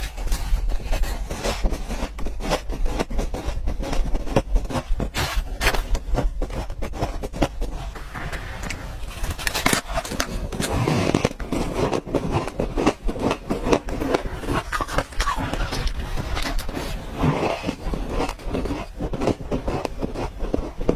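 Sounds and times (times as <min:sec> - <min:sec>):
ice being crunched: 0:08.4 - 0:20.9.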